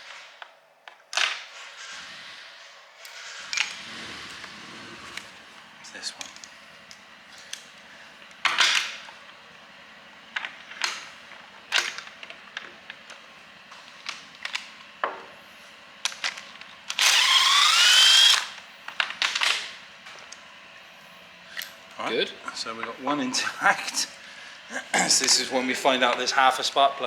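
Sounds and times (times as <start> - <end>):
power tool whine: 16.9 - 18.6.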